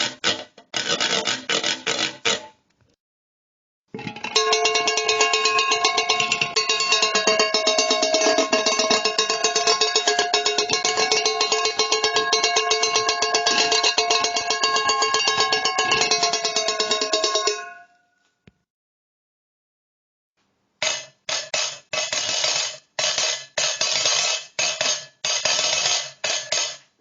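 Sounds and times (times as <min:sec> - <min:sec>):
metal cans struck in a roll: 0:04.0 - 0:17.8, 0:20.8 - 0:26.9.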